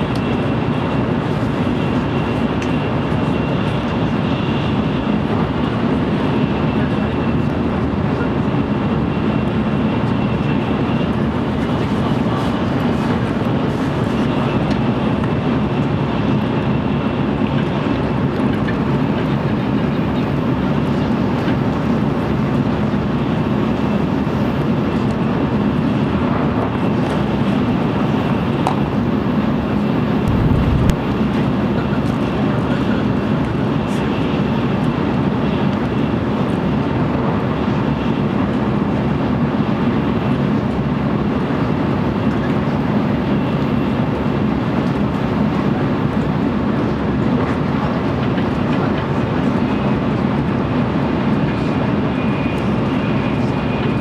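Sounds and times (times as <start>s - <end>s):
train wheels and air rushing: 26.3s - 32.2s
faint high whine: 29.9s - 32.0s
low thud: 30.3s - 31.2s.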